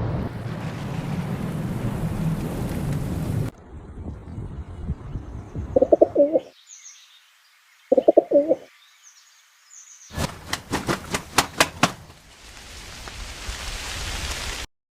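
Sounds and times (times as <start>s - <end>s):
pigeon cooing: 5.8s - 6.5s, 7.9s - 8.7s
sharp claps: 10.2s - 12.1s.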